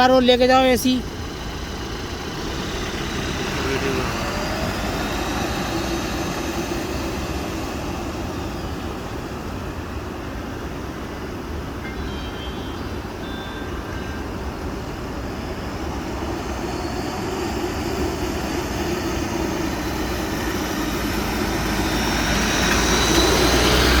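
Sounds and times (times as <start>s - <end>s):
vehicle engine running: 0.0s - 11.8s, 12.5s - 24.0s
vehicle driving through water: 1.0s - 10.1s, 16.4s - 24.0s.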